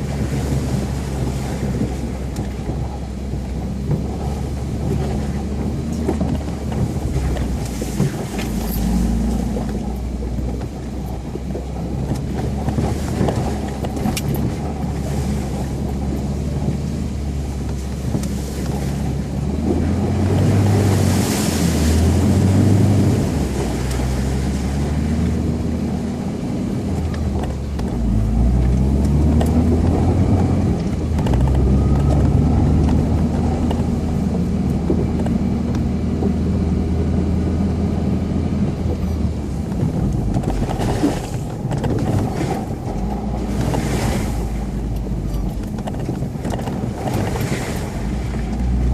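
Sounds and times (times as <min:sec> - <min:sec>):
off-road vehicle engine under load: 0:00.0 - 0:48.9.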